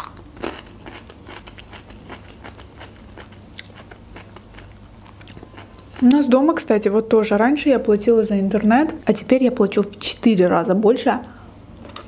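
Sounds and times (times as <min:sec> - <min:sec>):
chewing crunchy pastry: 0:00.0 - 0:06.4.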